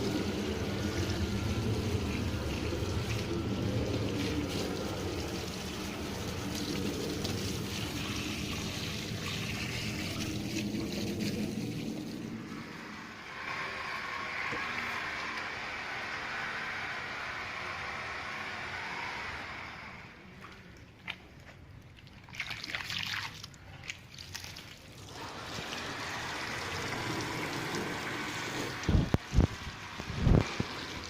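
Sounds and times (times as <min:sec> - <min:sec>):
water spraying on a car: 0:00.0 - 0:18.8, 0:22.3 - 0:31.0
low hum: 0:00.0 - 0:21.0.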